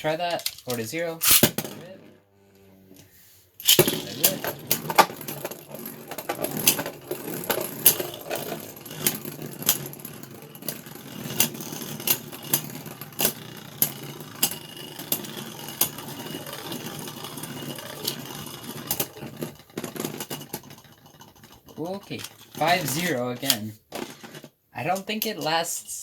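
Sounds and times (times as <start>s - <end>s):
spinning tops whirring: 3.6s - 5.0s, 14.4s - 19.5s.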